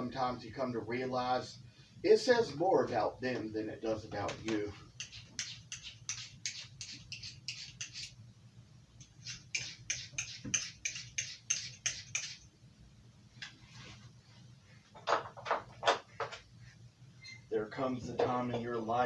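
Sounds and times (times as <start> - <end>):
knife scraping on sharpener: 5.0 - 8.2, 9.0 - 12.5.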